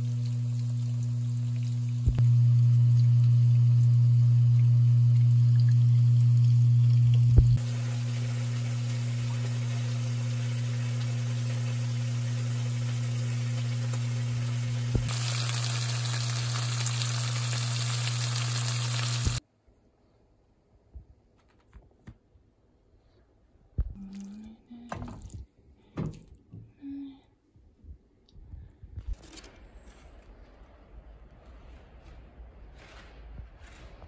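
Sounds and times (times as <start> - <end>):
low hum: 0.0 - 20.7, 23.6 - 34.0
food sizzling in a wok: 7.6 - 19.4.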